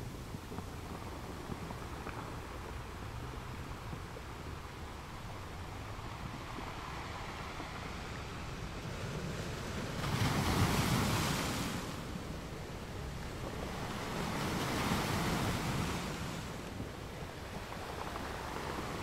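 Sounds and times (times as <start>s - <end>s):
sea waves washing: 0.0s - 19.0s
wind buffeting microphone: 0.0s - 19.0s.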